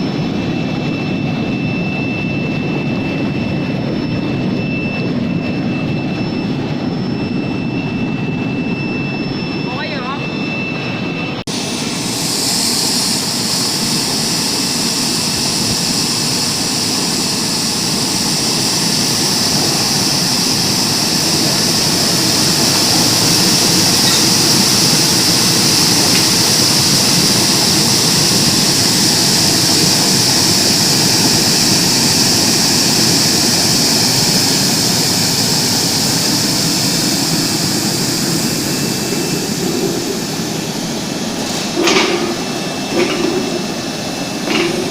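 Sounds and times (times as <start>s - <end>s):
low machine rumble: 38.0s - 44.9s.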